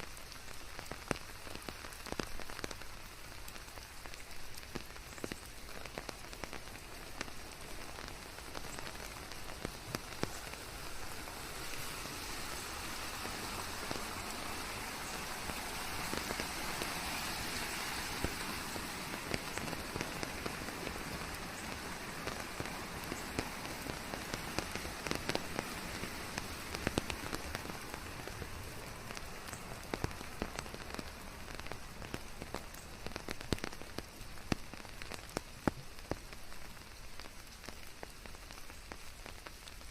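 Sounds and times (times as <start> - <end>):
rain pattering on leaves: 0.0 - 39.9.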